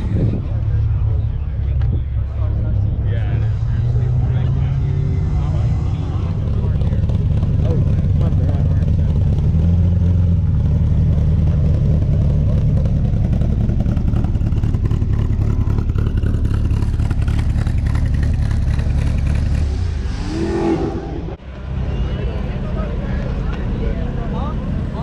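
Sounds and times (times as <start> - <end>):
car exhaust rumbling: 0.0 - 25.0
short higher sound: 19.3 - 22.3.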